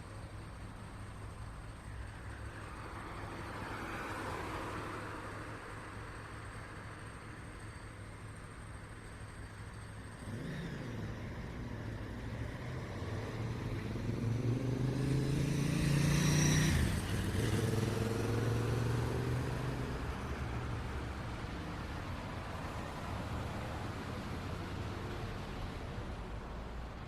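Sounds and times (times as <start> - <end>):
low traffic hum: 0.0 - 27.0
car passing by: 10.4 - 21.0.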